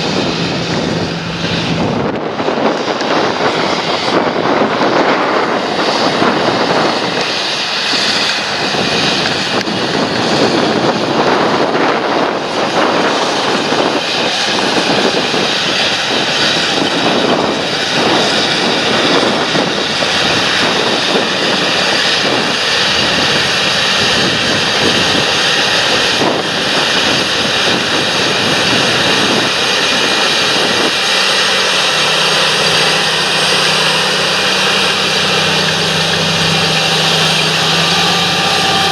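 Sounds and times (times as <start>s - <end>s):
lower steady hum: 0.0s - 4.5s
thin high whine: 0.0s - 9.6s, 28.7s - 38.9s
tractor diesel engine running: 0.0s - 12.3s, 15.7s - 38.9s.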